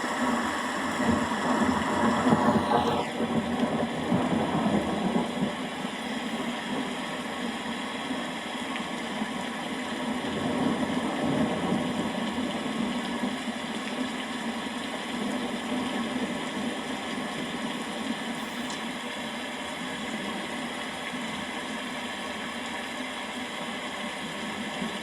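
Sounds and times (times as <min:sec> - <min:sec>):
steady rain: 0:00.0 - 0:25.0
low thunder rumble: 0:00.9 - 0:07.1, 0:10.2 - 0:13.3.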